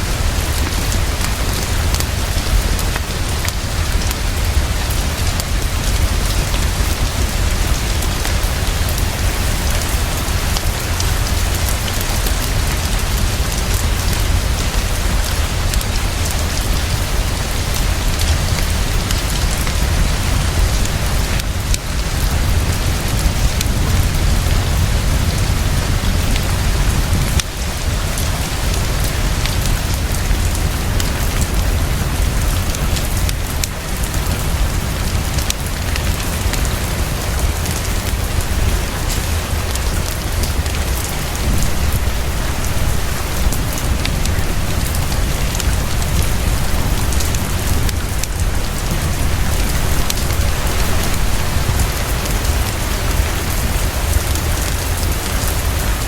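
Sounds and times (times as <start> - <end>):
deep low rumble: 0.0 - 36.4
heavy rain pouring: 0.0 - 56.0.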